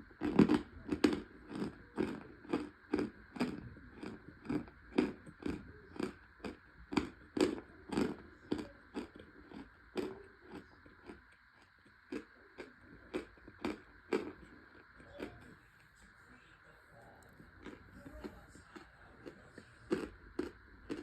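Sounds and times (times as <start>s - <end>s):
chewing crunchy cornstarch: 0.0s - 21.0s.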